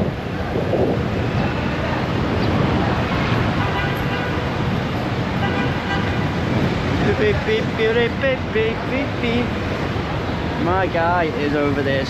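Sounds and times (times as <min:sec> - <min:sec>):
faint voices: 0:00.0 - 0:03.8
vehicle engines and road noise: 0:00.0 - 0:12.0.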